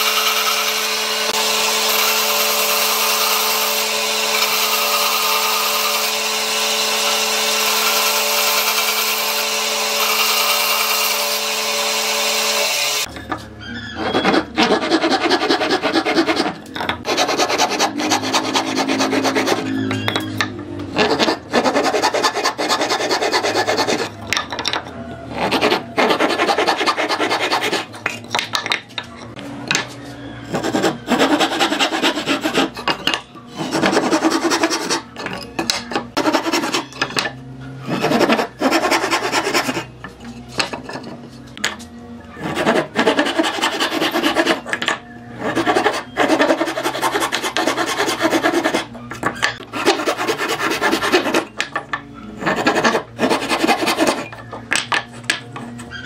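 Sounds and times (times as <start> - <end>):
rasping strokes on wood: 14.0 - 20.0, 20.9 - 24.2, 25.3 - 28.2, 30.4 - 37.0, 37.8 - 41.2, 42.4 - 44.8, 45.4 - 51.6, 52.2 - 54.5.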